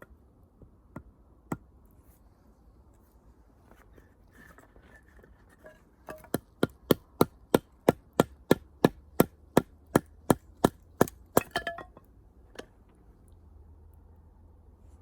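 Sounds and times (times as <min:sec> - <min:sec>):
axe chopping firewood: 0:00.9 - 0:01.7, 0:06.1 - 0:12.0.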